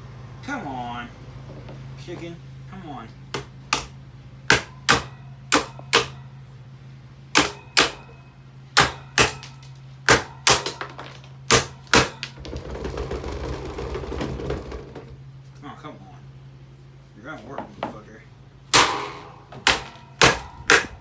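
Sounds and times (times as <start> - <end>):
electric fan motor hum: 0.0 - 21.0
sharp knocks in pairs: 3.3 - 6.2, 7.4 - 8.1, 8.8 - 15.1, 18.7 - 21.0
dense rattling buzz: 8.8 - 15.5, 18.5 - 21.0.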